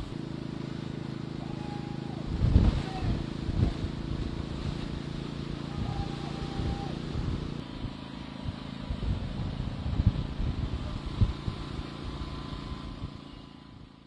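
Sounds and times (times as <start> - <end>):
wind buffeting microphone: 1.6 - 14.0
strong wind gusts: 2.2 - 4.5, 8.5 - 11.8.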